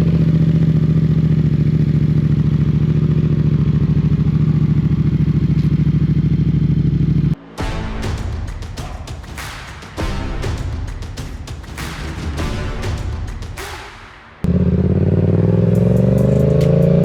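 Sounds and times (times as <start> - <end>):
motorcycle engine idling: 0.0 - 7.3
music: 7.4 - 14.5, 15.7 - 17.0.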